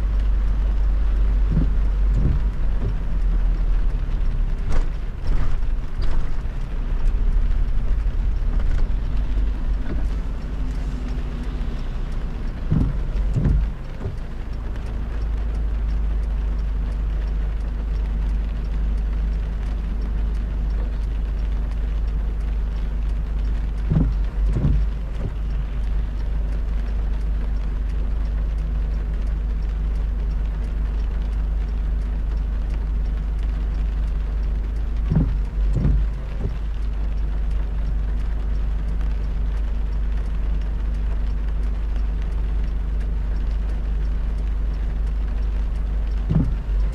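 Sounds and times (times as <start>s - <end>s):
car driving on wet road: 0.0s - 46.9s
heavy rain: 0.0s - 46.9s
double thump: 1.5s - 3.0s, 12.7s - 14.2s, 23.9s - 25.4s, 35.1s - 36.6s, 46.3s - 46.6s.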